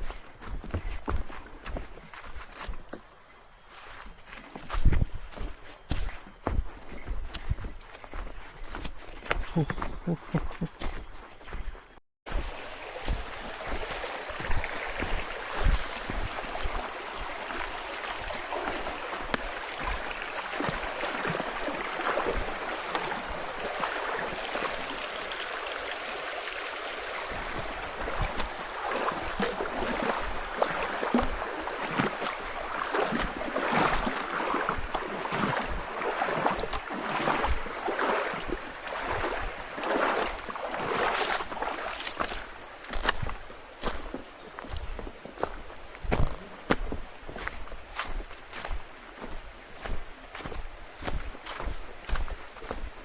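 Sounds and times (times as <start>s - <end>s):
footsteps walking: 0.0s - 3.1s, 3.7s - 24.4s, 27.3s - 53.0s
river water rushing: 12.3s - 44.8s.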